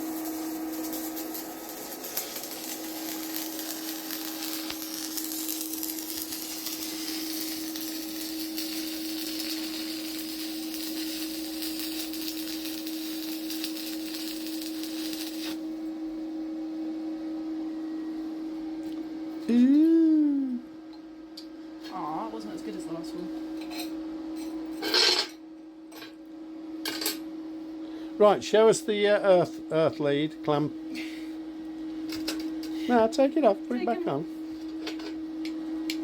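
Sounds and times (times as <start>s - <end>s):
welding arc hissing and crackling: 0.0s - 15.6s
welder humming: 0.0s - 16.5s, 17.4s - 21.5s, 27.8s - 36.0s.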